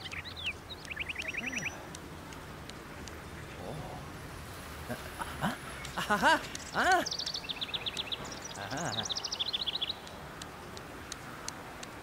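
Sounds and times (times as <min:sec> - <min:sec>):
rapid high chirping: 0:00.0 - 0:03.5
faint ticks: 0:00.0 - 0:03.7, 0:05.7 - 0:12.0
rising and falling calls: 0:00.0 - 0:10.8.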